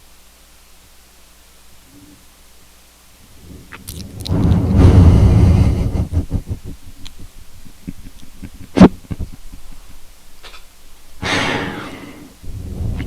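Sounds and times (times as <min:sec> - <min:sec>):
wet mouth clicks: 0:03.4 - 0:04.8.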